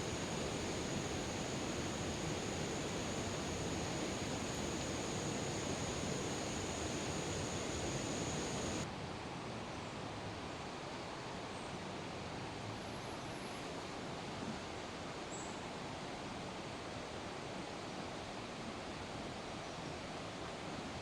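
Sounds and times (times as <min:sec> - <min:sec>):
heavy rain hissing: 0:00.0 - 0:08.8.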